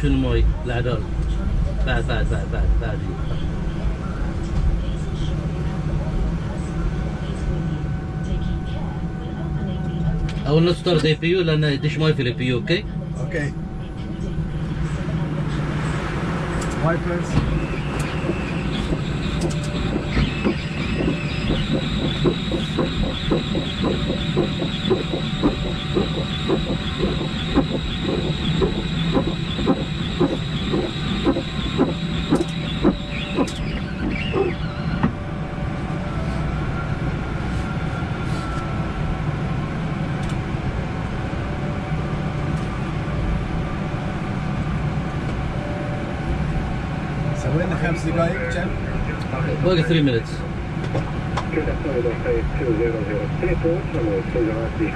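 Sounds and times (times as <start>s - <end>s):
jet engine hum: 0.0s - 54.9s
windscreen wipers beating: 16.2s - 35.2s.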